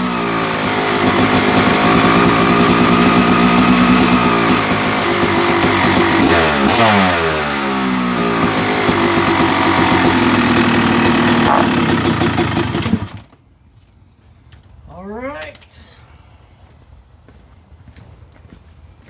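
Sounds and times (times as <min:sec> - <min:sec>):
two-stroke motocross engine running: 0:00.0 - 0:13.3.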